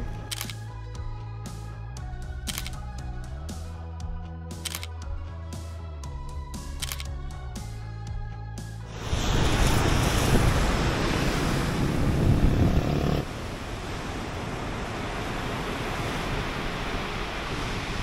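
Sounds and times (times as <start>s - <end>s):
ocean surf washing on shore: 8.9s - 18.0s
wind buffeting microphone: 9.2s - 18.0s.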